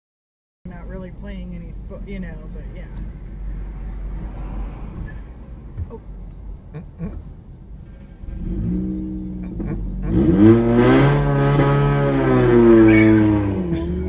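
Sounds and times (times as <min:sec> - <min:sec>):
car engine revving: 0:00.7 - 0:14.0.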